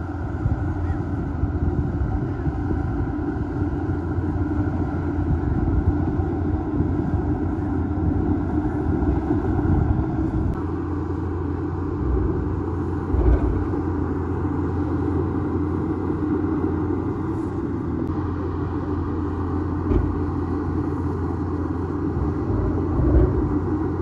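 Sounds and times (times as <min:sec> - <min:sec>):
bulldozer diesel engine rumbling: 0:00.0 - 0:24.0.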